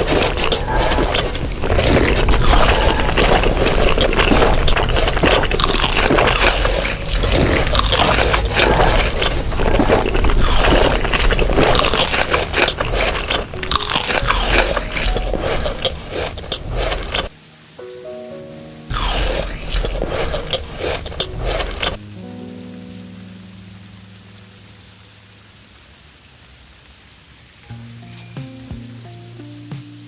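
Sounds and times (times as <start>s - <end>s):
chewing and crunching food: 0.0s - 17.4s, 18.9s - 22.0s.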